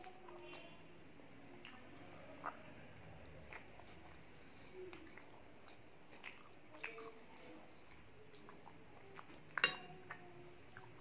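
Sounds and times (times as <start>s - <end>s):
soft chewing with mouth smacks: 0.0s - 11.0s
metal spoon clinking on glass plate: 9.6s - 10.0s.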